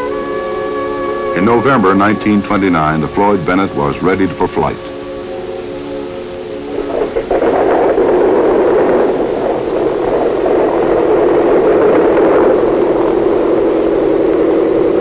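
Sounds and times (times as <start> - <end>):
aircraft piston engines droning: 0.0 - 7.3
music: 0.0 - 10.6.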